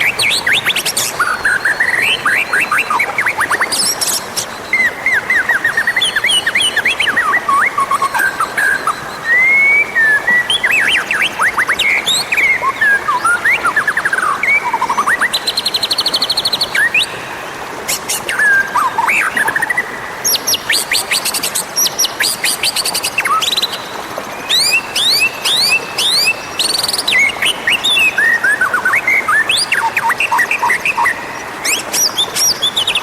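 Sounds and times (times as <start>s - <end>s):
bird singing varied song: 0.0s - 33.0s.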